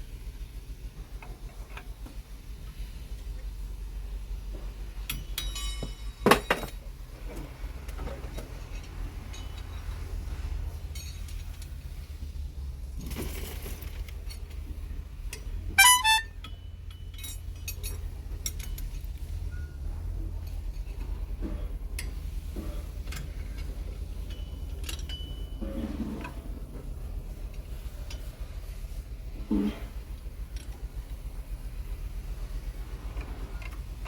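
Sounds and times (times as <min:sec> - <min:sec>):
steady low rumble: 0:00.0 - 0:34.0
sharp ringing metallic clanks: 0:05.1 - 0:07.0, 0:08.6 - 0:10.0, 0:10.8 - 0:11.8, 0:15.8 - 0:19.9, 0:24.1 - 0:26.2
metal tools clinking and clanking: 0:05.1 - 0:12.1, 0:15.8 - 0:26.9.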